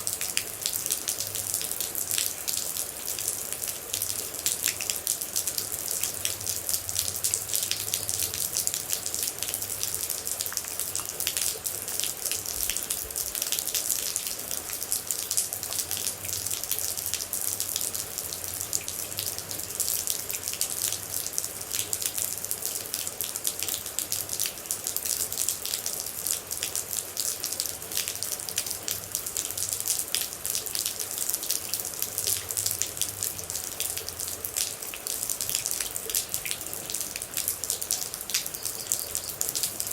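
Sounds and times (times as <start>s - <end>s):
rain droplets spattering: 0.0s - 39.9s.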